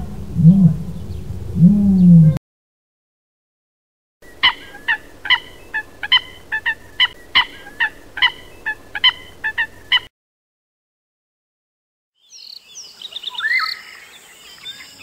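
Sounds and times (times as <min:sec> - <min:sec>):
bird short sharp calls: 0:04.3 - 0:10.1.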